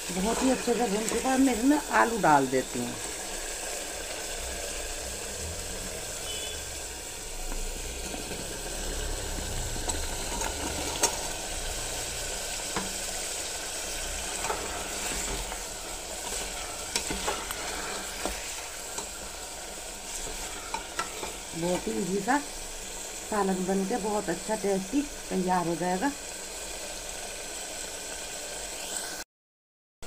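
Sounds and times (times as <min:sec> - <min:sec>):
food sizzling in a pot: 0:00.0 - 0:29.2
metal ladle scraping a pot: 0:09.3 - 0:11.4, 0:13.5 - 0:21.9.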